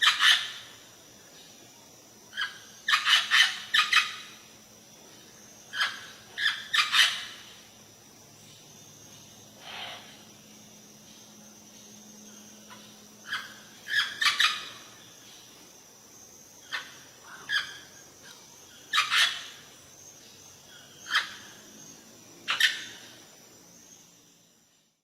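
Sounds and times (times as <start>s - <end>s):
bird sharp calls: 2.4s - 4.5s, 5.7s - 7.6s, 12.6s - 15.1s, 18.7s - 19.8s.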